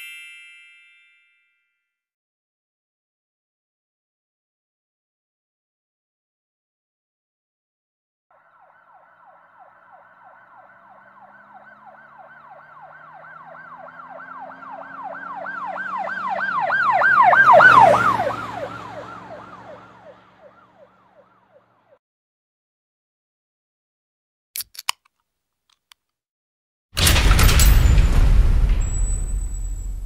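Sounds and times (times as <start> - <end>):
emergency siren yelping: 8.3 - 22.0
vehicle engine rumbling: 8.9 - 20.8.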